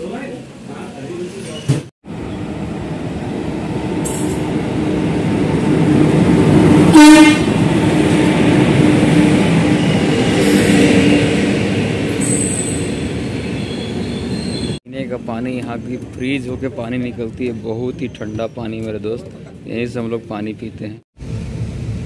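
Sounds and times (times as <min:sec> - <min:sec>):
train horn blast: 0:06.9 - 0:07.6
high squeals: 0:12.1 - 0:14.8.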